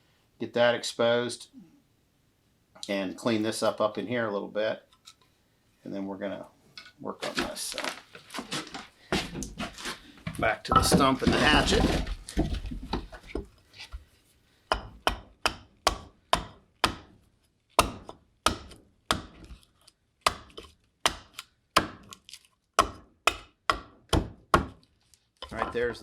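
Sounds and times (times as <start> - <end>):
hatchet chopping wood: 14.7 - 17.2, 17.8 - 19.6, 20.2 - 22.2, 22.8 - 24.8.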